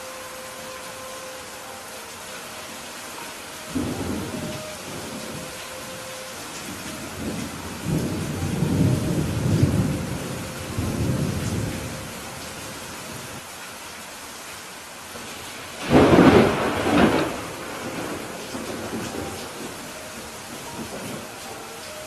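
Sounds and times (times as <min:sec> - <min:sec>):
steady rain: 0:00.0 - 0:22.0
rolling thunder: 0:06.6 - 0:12.2, 0:15.8 - 0:21.4
thunder crack: 0:15.8 - 0:19.7.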